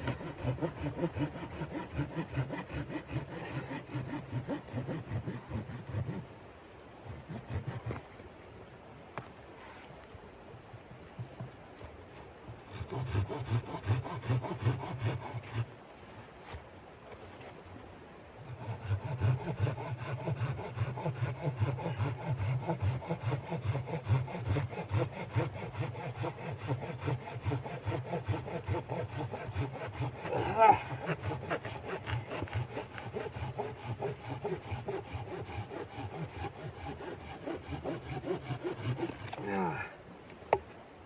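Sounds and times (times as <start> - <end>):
hand saw cutting wood: 0.0 - 6.2, 7.1 - 8.2, 12.7 - 15.7, 18.4 - 39.8.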